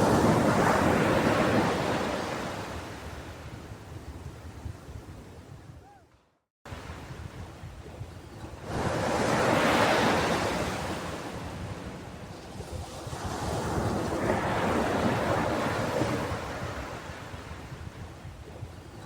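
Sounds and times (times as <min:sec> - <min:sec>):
ocean waves breaking on beach: 0:00.0 - 0:05.7, 0:06.7 - 0:19.0.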